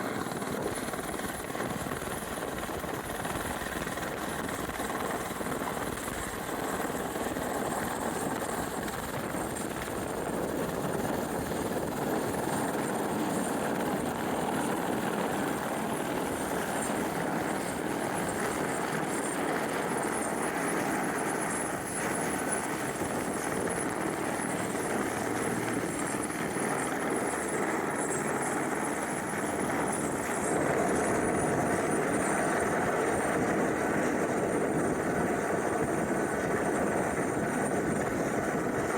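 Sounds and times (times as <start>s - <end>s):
helicopter rotor and turbine: 0.0s - 38.9s.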